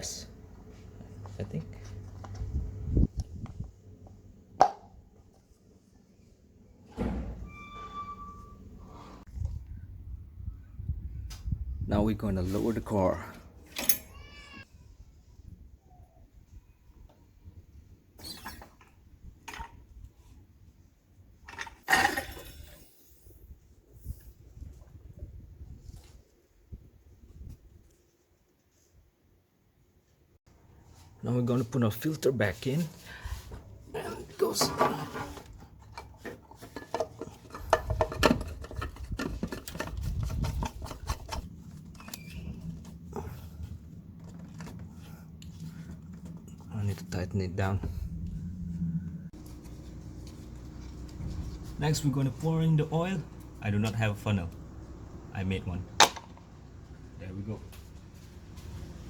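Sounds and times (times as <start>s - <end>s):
metallic clanks of jack stands: 13.7s - 14.2s
low rumble: 42.4s - 51.8s.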